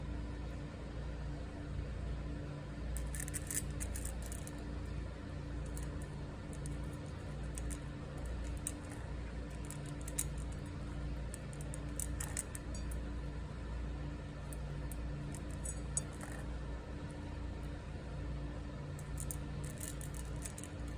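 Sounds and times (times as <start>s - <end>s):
low background hum: 0.0s - 20.9s
cat crunching dry kibble: 3.0s - 4.6s, 5.6s - 13.0s, 14.5s - 16.4s, 19.0s - 20.9s.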